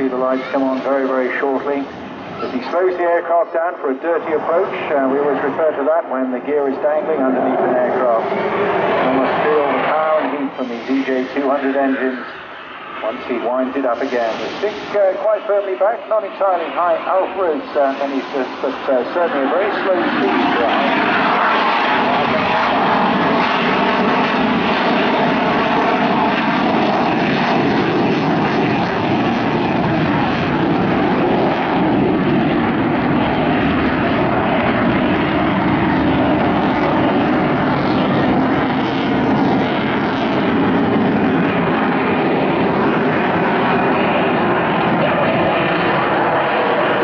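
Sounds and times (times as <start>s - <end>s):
jet engines roaring: 0.0s - 47.0s.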